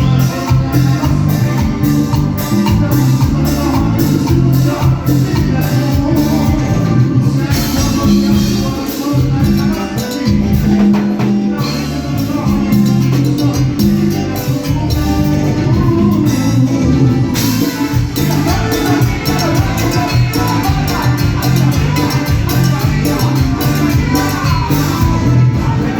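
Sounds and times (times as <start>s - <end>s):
heavy bass line: 0.0s - 25.9s
live band playing dance music: 0.0s - 25.9s
steady percussion: 0.0s - 25.9s.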